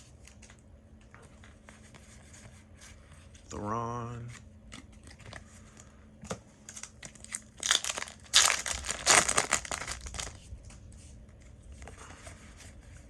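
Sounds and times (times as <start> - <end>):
foil wrapper crinkling and tearing: 6.7 - 10.4.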